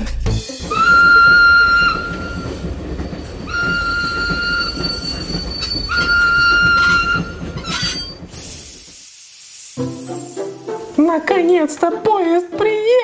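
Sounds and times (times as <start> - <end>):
passing train rumbling: 0.2 - 8.9.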